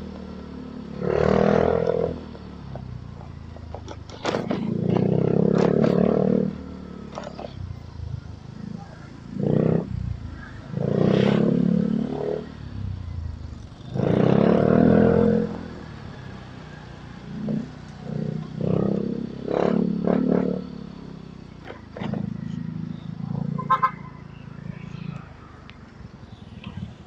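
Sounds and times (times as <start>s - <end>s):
motorcycle engine pulling hard: 1.0s - 7.8s, 16.6s - 23.6s.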